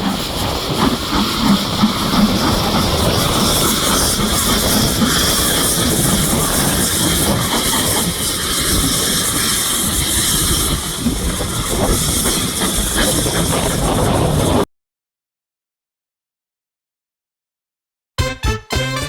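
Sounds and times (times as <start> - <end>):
steam hissing: 0.0 - 14.6
wheels clattering on track: 0.0 - 14.6.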